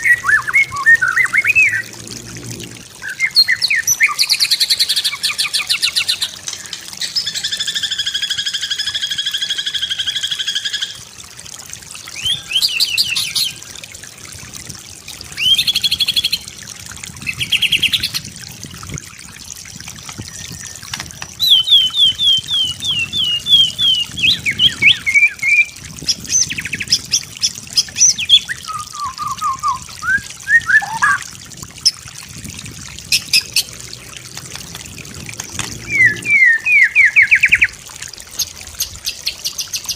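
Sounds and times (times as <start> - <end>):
songbird singing: 0.0 - 1.9, 3.0 - 11.0, 12.1 - 13.6, 20.1 - 31.3, 35.6 - 37.8.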